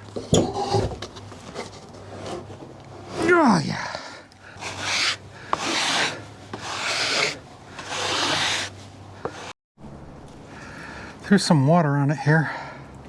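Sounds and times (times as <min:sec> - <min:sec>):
wooden slab scraping across wood: 0:04.6 - 0:09.5.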